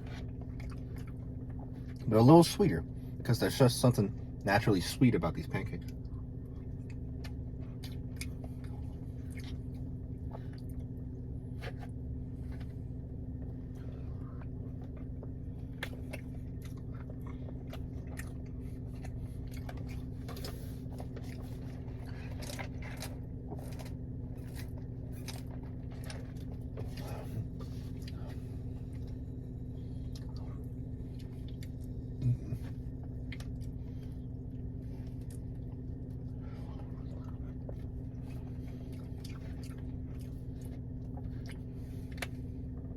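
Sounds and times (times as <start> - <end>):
person chewing wet mouth sounds: 0.0 - 2.0, 5.8 - 10.9, 13.4 - 29.2, 30.0 - 42.9
steady low hum: 0.0 - 42.9.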